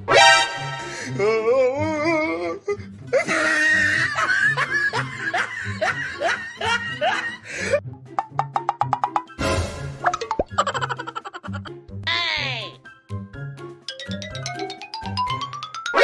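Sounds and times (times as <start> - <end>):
music: 0.0 - 16.0
dubbed laughing sound effect: 10.2 - 11.8.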